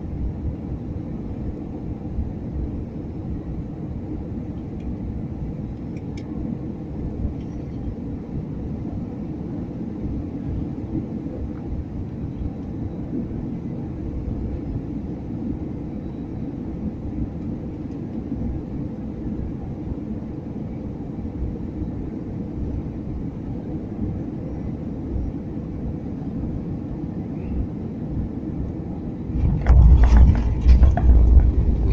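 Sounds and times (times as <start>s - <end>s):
airliner rumble in flight: 0.0s - 31.9s
heavy rumble and rattle: 29.3s - 31.9s.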